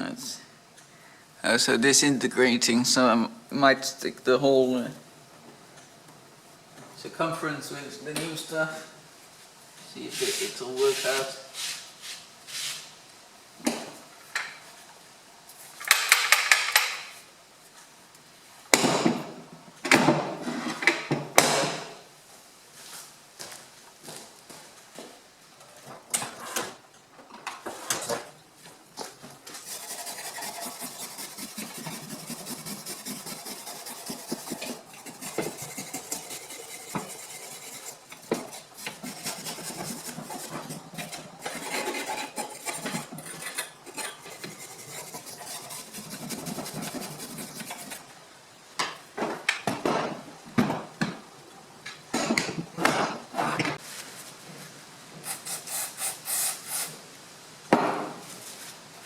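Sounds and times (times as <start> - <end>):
scraping on heater door: 29.6 - 48.0.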